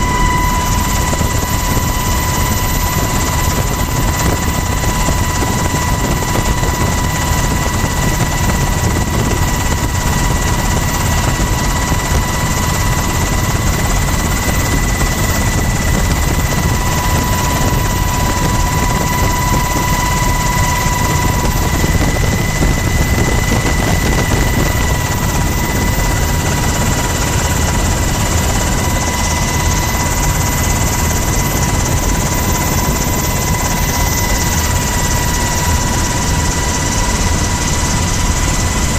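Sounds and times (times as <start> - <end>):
helicopter rotor and turbine running: 0.0 - 38.9.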